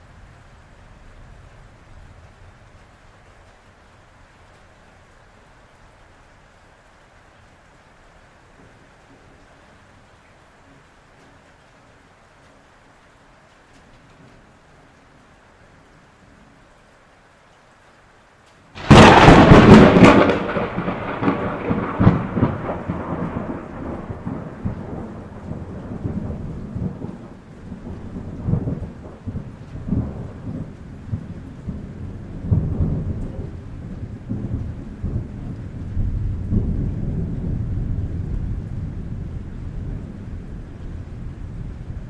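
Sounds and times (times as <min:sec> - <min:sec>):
steady rain: 0:00.0 - 0:42.0
thunderclap with rolling rumble: 0:18.8 - 0:42.0.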